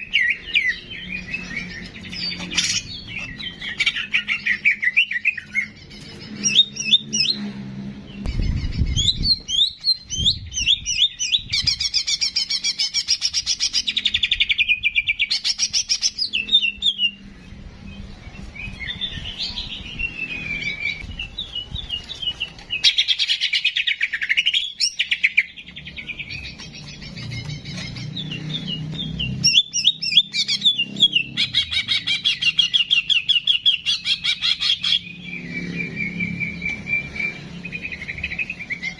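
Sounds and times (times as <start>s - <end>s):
songbird singing trills: 8.1s - 38.9s.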